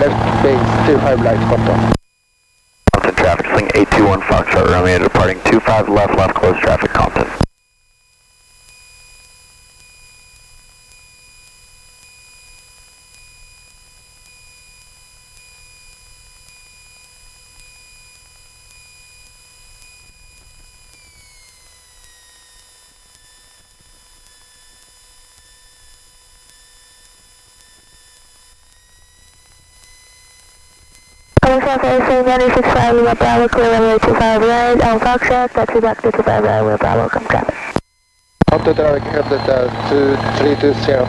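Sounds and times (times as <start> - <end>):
electrical whine: 0.0 - 2.0, 28.4 - 37.8, 38.4 - 41.0
low aircraft engine rumble: 0.0 - 2.0, 38.4 - 41.0.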